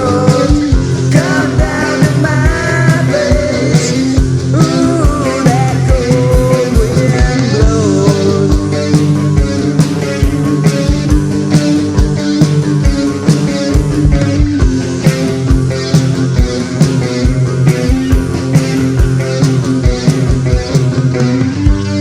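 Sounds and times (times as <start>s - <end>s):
person singing: 0.0s - 9.1s
electric guitars: 0.0s - 22.0s
rock drum beat: 0.0s - 22.0s.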